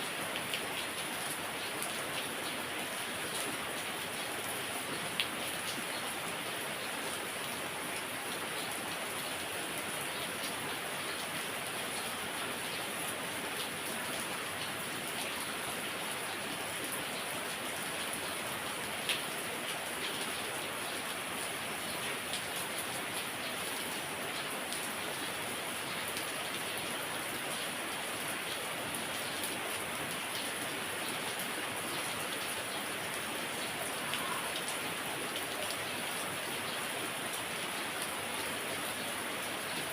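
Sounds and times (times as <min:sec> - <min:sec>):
heavy rain hissing: 0:33.8 - 0:34.9.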